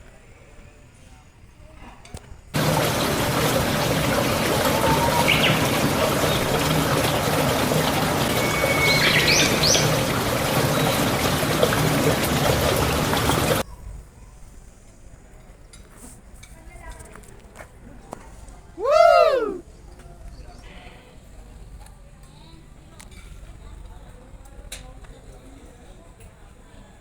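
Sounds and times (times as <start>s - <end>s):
running water rushing: 2.6s - 13.6s
bird chirps: 4.8s - 11.4s.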